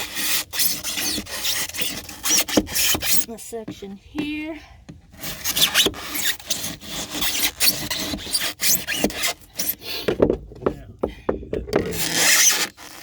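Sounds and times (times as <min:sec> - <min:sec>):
scraping and rubbing foam: 0:00.0 - 0:03.8, 0:05.1 - 0:09.9, 0:11.8 - 0:13.0.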